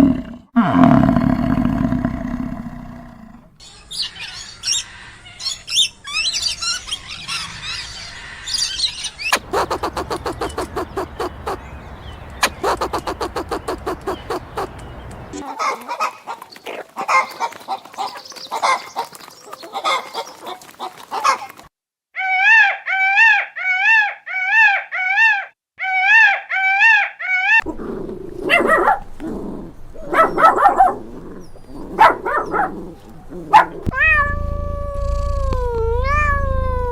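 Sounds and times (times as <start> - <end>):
rising-and-falling animal calls: 0.0 - 21.5, 22.2 - 29.0, 29.6 - 36.9
high bird chirping: 3.6 - 15.4
rapid repeated animal calls: 8.8 - 27.7.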